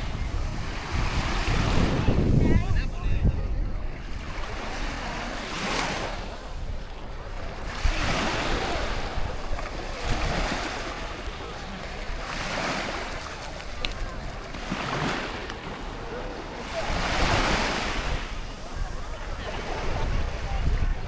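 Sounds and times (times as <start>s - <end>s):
wind rumbling on microphone: 0.0s - 5.4s, 6.1s - 12.3s, 16.8s - 21.0s
sea waves washing onto shore: 0.0s - 21.0s.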